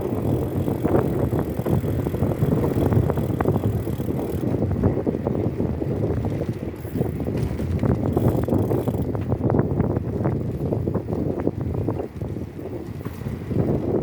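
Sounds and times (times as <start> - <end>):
bike rattles and clicks: 0.0 - 14.0
bike tyre noise: 0.0 - 14.0
wind on microphone: 0.0 - 14.0.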